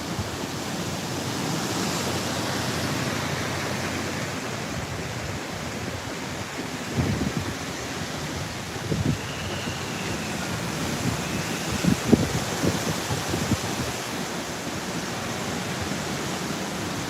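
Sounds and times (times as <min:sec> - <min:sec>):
surf: 0:00.0 - 0:17.0
wind buffeting microphone: 0:02.8 - 0:15.0
strong wind rushing: 0:06.9 - 0:14.3.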